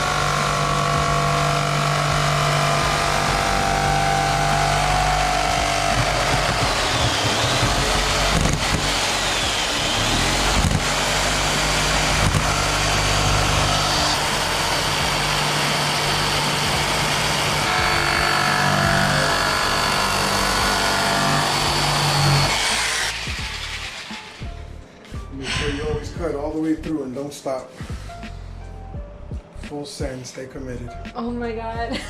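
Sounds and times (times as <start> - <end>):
sharp knocks: 0.0 - 23.5
power tool cutting plastic: 0.0 - 24.8.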